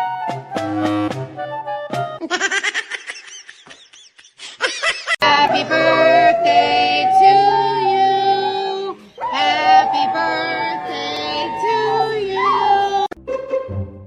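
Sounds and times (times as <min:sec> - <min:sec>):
high voice singing held notes: 0:05.2 - 0:13.1.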